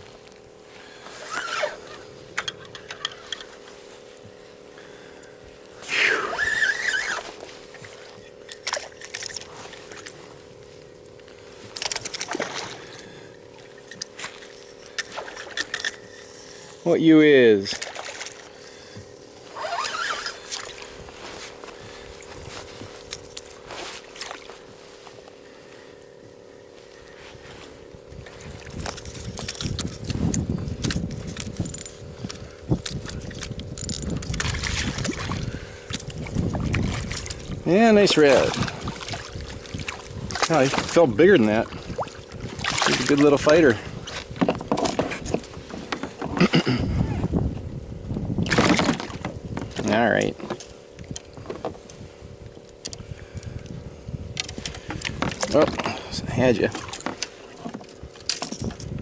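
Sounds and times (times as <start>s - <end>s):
faint steady hum: 0.0s - 59.0s
water splashing against a kayak: 5.7s - 15.9s, 16.5s - 25.2s, 32.9s - 47.0s, 48.1s - 51.9s, 54.4s - 58.1s
water splashing: 17.6s - 18.5s, 34.4s - 35.6s, 36.2s - 44.2s
knocks and scrapes on kayak: 39.8s - 47.3s, 48.5s - 50.6s.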